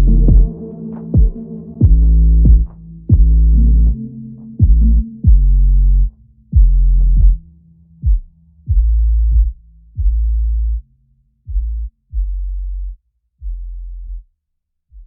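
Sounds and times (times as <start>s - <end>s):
hip-hop beat with deep bass: 0.0s - 10.7s.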